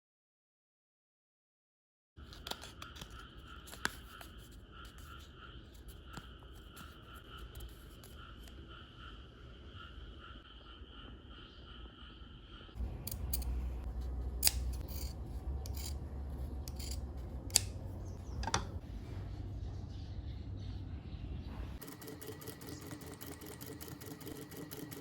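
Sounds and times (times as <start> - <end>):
rubbing and handling noise: 2.2 - 8.6
scissors snipping: 14.4 - 15.1, 16.6 - 17.8.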